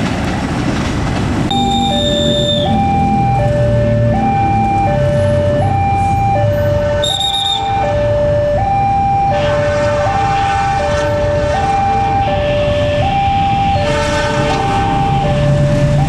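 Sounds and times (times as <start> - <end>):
approaching train rumble: 0.0 - 16.0
high whistle-like tone: 1.5 - 3.2, 7.0 - 7.9
two-tone crossing alarm: 1.5 - 16.0.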